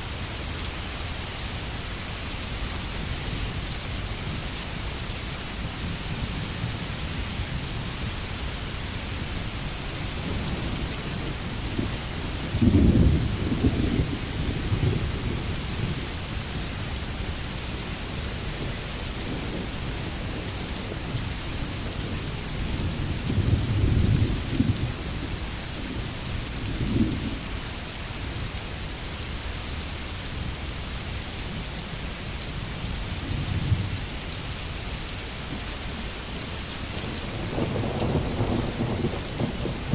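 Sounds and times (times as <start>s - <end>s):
steady rain: 0.0s - 39.9s
distant thunder rumbling: 10.2s - 16.1s, 37.0s - 39.9s.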